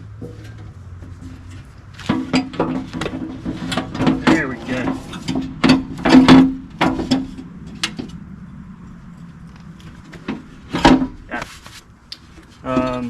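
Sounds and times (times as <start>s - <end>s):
metal door knocking and clanking: 2.1s - 8.0s.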